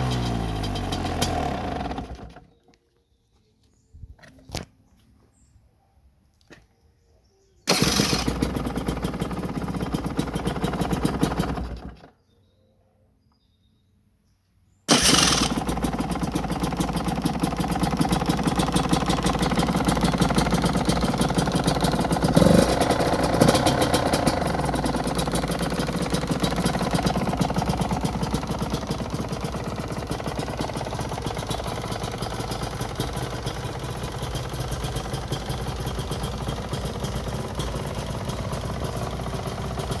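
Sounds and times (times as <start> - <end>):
two-stroke engine idling: 0.0 - 2.6, 7.7 - 12.1, 14.9 - 40.0
electric starter: 7.7 - 12.0, 14.9 - 33.4.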